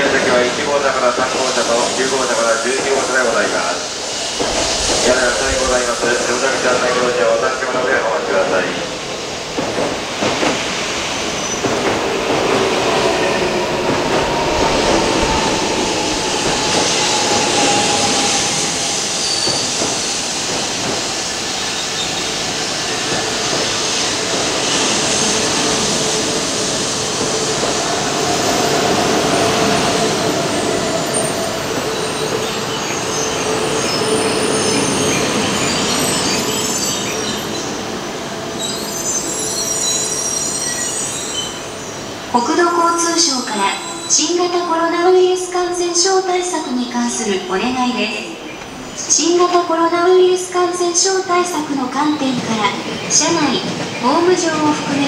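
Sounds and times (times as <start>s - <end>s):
train rumble and hiss: 0.0s - 55.0s
long squealing tones: 13.2s - 20.8s.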